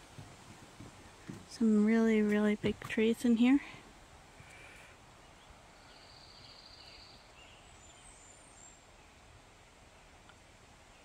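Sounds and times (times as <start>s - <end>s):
bird chirps: 5.2s - 9.2s.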